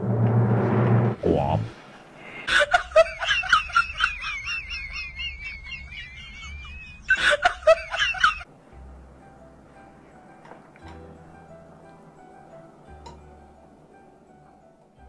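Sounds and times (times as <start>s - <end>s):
faint background music: 8.5s - 15.0s.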